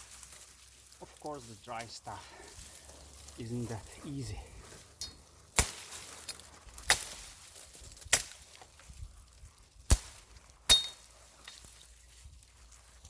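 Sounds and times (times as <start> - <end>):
machete chopping wood: 5.5 - 6.1, 6.8 - 7.3, 8.1 - 8.6, 9.9 - 11.1.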